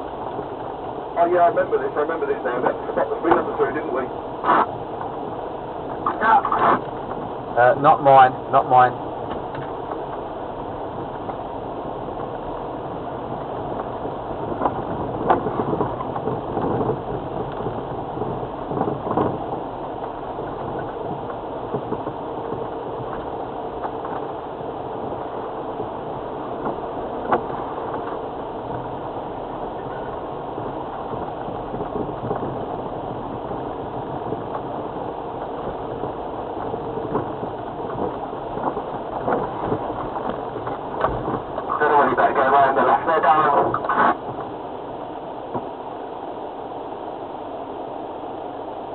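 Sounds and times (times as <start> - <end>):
diesel engine running at low speed: 0.0 - 48.9
vehicle knocks and rattles: 12.1 - 41.7.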